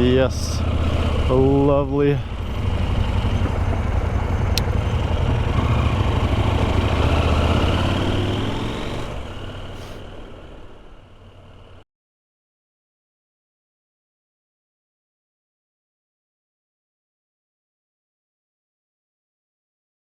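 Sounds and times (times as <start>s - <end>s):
motorcycle engine accelerating: 0.0s - 11.8s.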